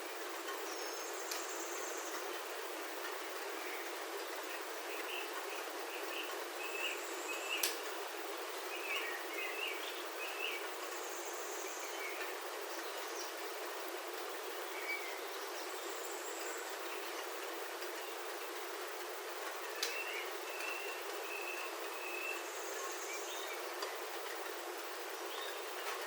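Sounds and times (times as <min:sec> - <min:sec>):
rain on a roof: 0:00.0 - 0:26.0
birds chirping: 0:00.4 - 0:26.0
sharp tick: 0:07.6 - 0:07.8.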